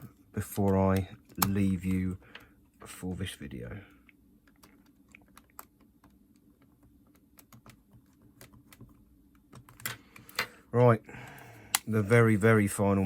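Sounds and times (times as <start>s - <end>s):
plastic parts clicking and tapping: 0.0s - 3.0s, 4.4s - 10.6s.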